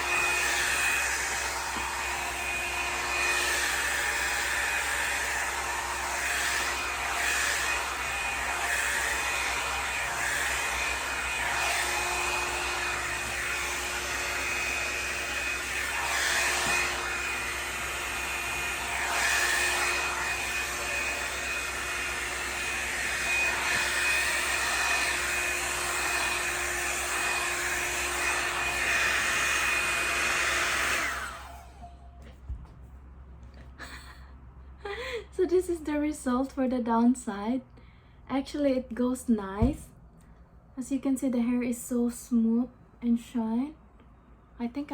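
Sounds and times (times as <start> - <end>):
hot-air brush dryer whining: 0.0 - 31.9.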